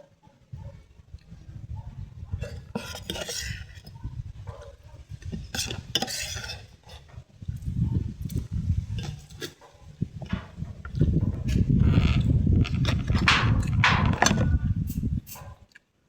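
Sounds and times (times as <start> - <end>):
utensils scraping on a plate: 2.4 - 4.0, 5.2 - 7.1.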